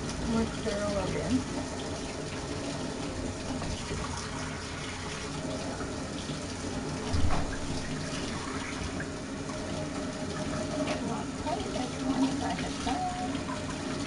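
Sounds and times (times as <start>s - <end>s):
running water: 0.0s - 14.0s
low thump: 7.1s - 7.8s.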